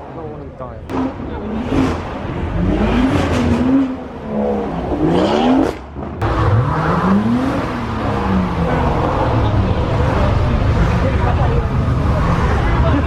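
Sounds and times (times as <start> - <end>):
car engines revving: 0.0 - 13.0
low engine rumble: 7.2 - 13.0.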